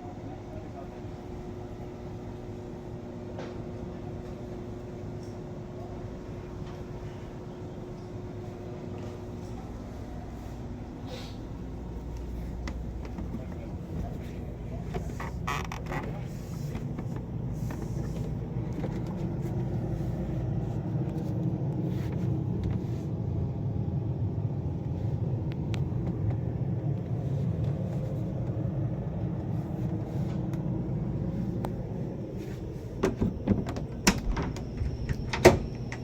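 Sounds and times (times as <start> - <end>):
machinery rumble and hum: 0.0 - 36.0.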